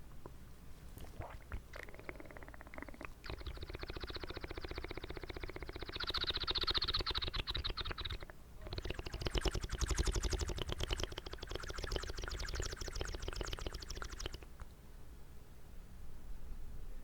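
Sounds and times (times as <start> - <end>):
wet mouth clicks: 1.0 - 14.6.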